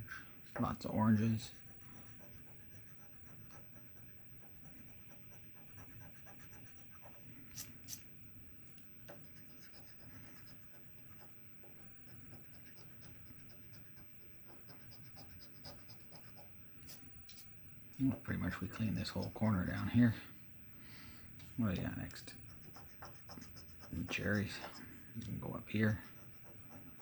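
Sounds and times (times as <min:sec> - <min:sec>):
lottery ticket being scratched: 0:21.7 - 0:24.9.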